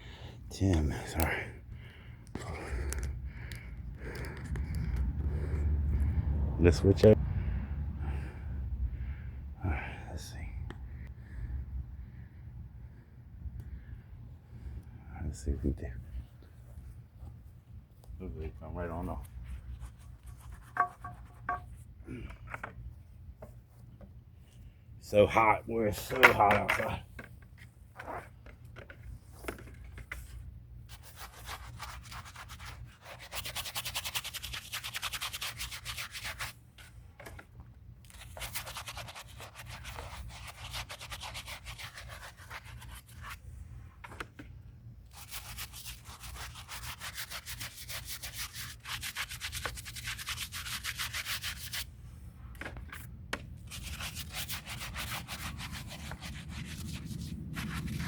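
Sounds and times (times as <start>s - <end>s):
scrub brush on concrete: 30.9s - 36.6s, 38.1s - 43.4s, 45.1s - 51.9s, 53.7s - 58.0s.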